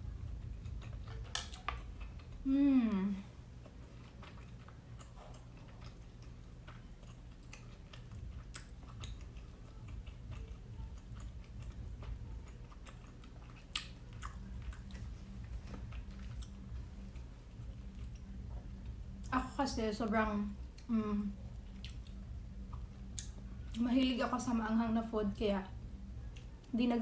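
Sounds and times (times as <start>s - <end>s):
close chewing: 0.0s - 19.3s, 21.5s - 23.8s.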